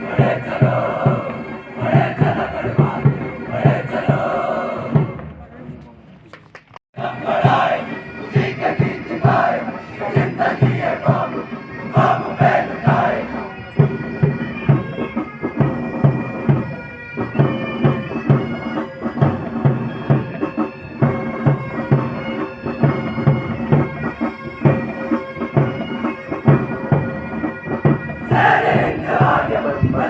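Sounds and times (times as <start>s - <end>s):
bagpipes playing held notes: 7.0s - 30.0s.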